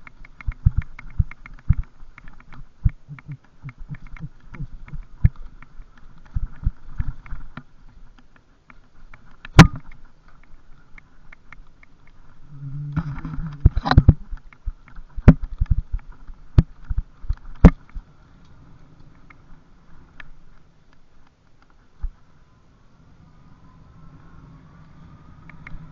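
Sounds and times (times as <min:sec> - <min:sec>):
bicycle thumping and rattling: 0:00.0 - 0:10.5
light regular ticking: 0:00.0 - 0:22.2.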